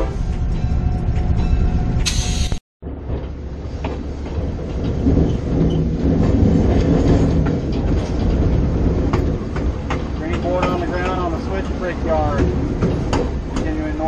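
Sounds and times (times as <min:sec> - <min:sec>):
locomotive rumbling: 0:00.0 - 0:14.0
wheels clicking on track: 0:03.2 - 0:14.0.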